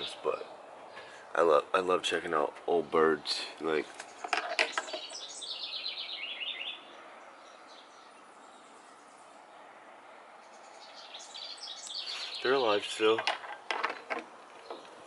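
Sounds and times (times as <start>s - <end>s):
outdoor background noise: 0.0s - 15.0s
small bird chirping: 3.9s - 9.7s, 10.4s - 13.1s.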